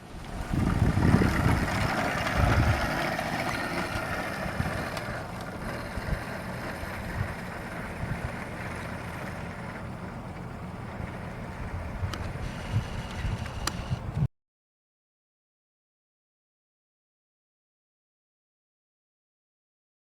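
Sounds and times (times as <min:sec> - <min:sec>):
wind on microphone: 0:00.0 - 0:08.6, 0:11.5 - 0:14.3
electric motorcycles whining: 0:00.0 - 0:14.3.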